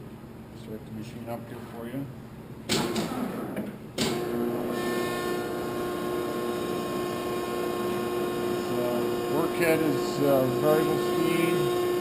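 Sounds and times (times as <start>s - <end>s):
steady electric hum: 0.0s - 12.0s
grinder motors starting up: 2.9s - 12.0s.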